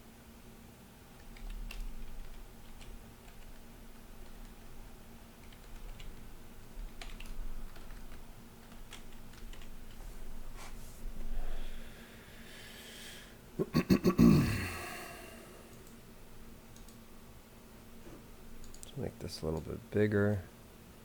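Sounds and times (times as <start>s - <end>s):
typing on computer keyboard: 1.1s - 4.7s, 5.4s - 10.0s, 16.7s - 17.0s.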